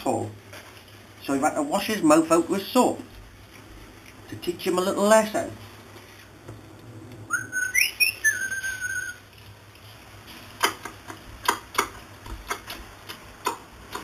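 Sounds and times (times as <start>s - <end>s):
parrot whistling: 7.3s - 9.2s
sharp irregular clicks: 10.6s - 14.0s.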